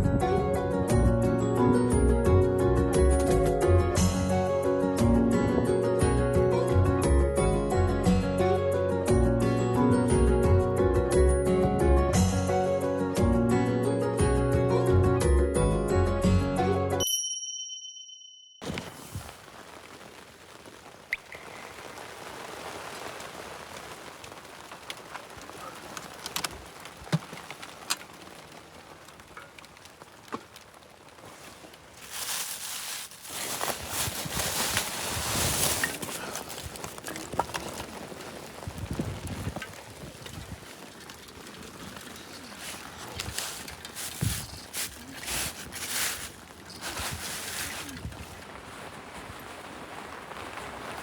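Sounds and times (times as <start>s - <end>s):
ticks of driven snow: 18.6s - 51.0s
wind blowing: 18.6s - 51.0s
wind gust buffeting microphone: 37.9s - 44.7s.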